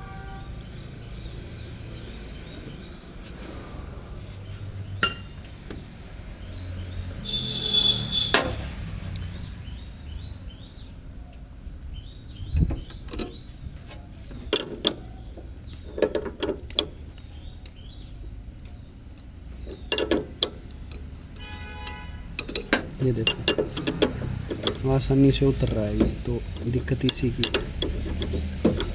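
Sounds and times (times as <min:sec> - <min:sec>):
spanners clinking on metal: 0:05.0 - 0:05.6, 0:12.7 - 0:28.9.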